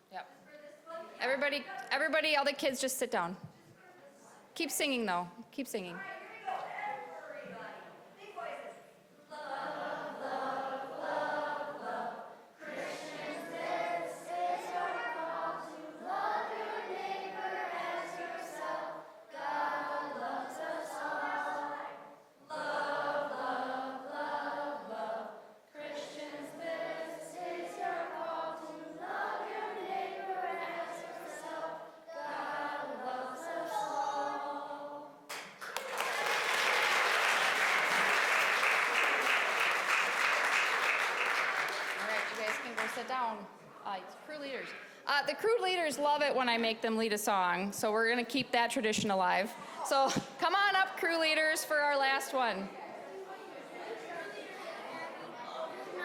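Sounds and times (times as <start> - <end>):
group singing unaccompanied: 9.2 - 35.3
applause: 35.3 - 43.2.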